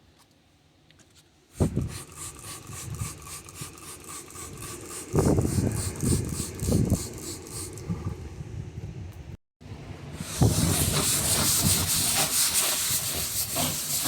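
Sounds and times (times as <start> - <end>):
brush scrubbing a trough: 1.7 - 7.7, 10.2 - 14.0.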